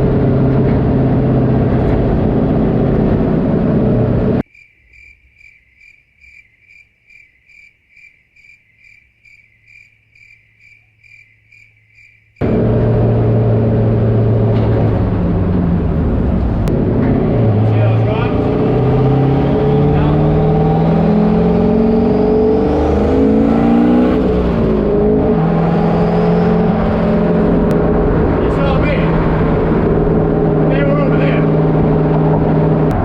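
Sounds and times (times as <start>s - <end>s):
loud race car engine: 0.0s - 4.4s, 12.4s - 33.0s.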